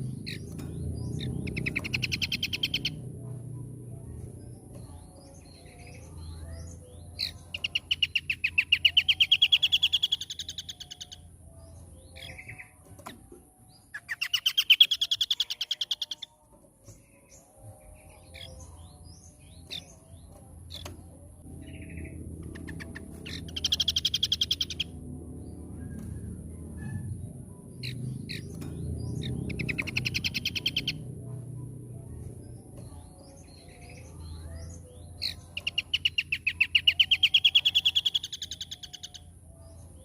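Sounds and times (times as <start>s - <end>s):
bird trilling: 1.2s - 3.0s, 21.9s - 25.0s, 29.3s - 31.0s.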